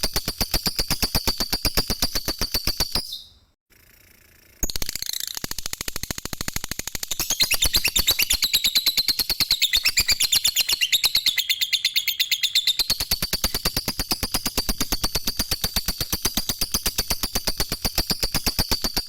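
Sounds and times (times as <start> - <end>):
lovebird chattering: 7.1 - 19.0.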